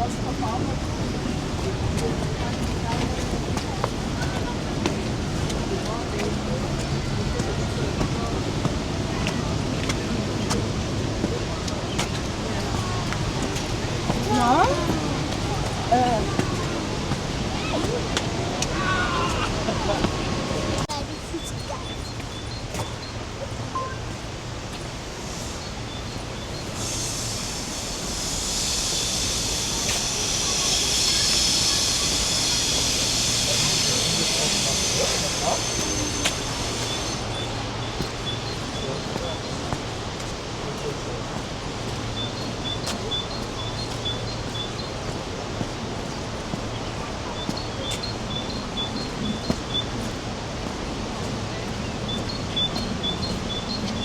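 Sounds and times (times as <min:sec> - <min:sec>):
waterfall roaring: 0:00.0 - 0:54.0
high hiss of spray: 0:25.2 - 0:39.6.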